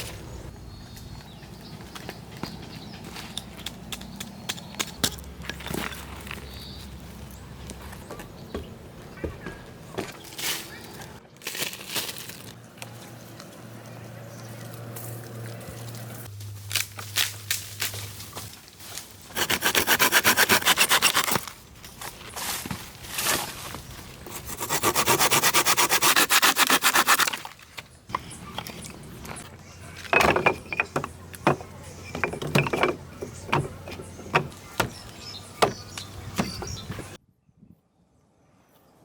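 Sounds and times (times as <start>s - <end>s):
saw cutting through wood: 19.3s - 21.5s, 24.3s - 27.4s
wooden knocks and taps: 30.1s - 35.0s.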